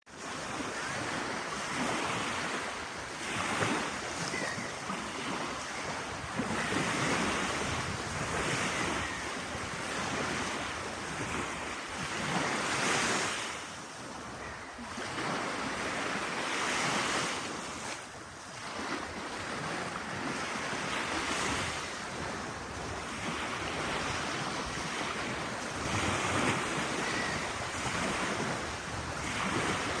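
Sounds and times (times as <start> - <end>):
sea waves breaking: 0.1 - 30.0
wind buffeting microphone: 3.2 - 13.0, 21.3 - 30.0.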